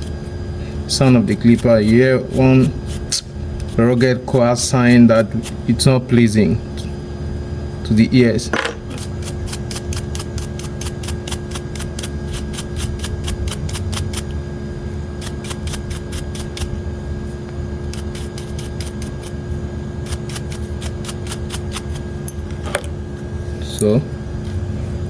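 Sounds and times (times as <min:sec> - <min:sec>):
electric hair clipper humming: 0:08.6 - 0:14.4, 0:15.1 - 0:16.8.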